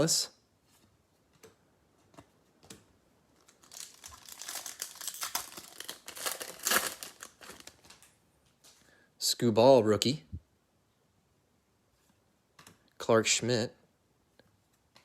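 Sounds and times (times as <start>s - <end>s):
foil wrapper tearing and crinkling: 3.4s - 8.1s.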